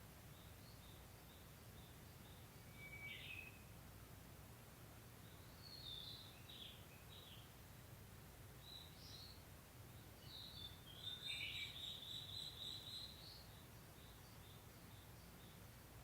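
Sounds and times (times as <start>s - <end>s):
bird singing faintly: 0.3s - 3.7s, 10.0s - 15.7s
bird chirps: 0.4s - 3.7s, 10.2s - 15.6s.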